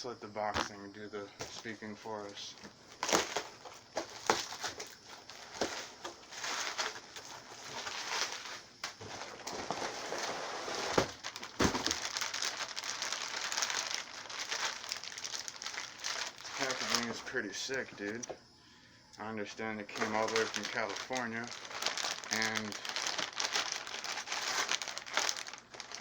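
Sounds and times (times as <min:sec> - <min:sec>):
cardboard packaging rustling: 0:01.4 - 0:18.3, 0:19.9 - 0:26.0
box knocks: 0:11.0 - 0:12.0.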